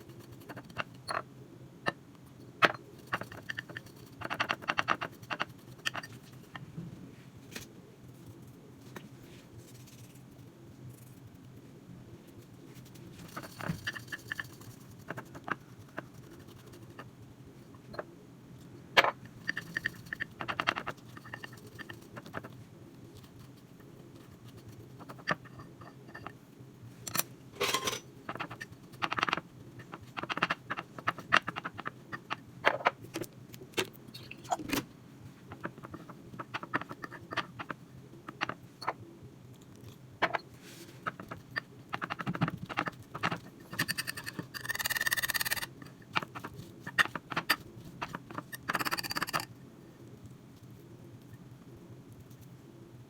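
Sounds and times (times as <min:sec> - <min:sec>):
faint low hum: 0:00.0 - 0:53.0
objects clinking and scraping: 0:27.1 - 0:28.1.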